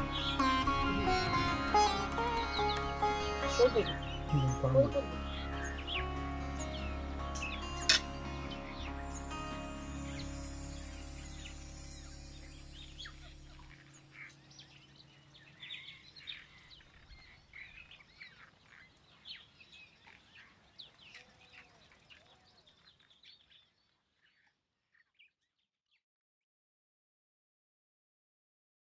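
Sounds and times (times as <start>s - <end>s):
end music: 0.0s - 15.8s
small birds chirping: 0.0s - 26.0s.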